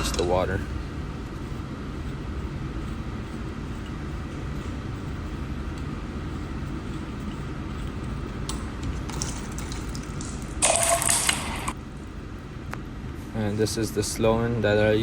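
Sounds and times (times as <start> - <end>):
water splashing into cup: 9.1 - 11.8.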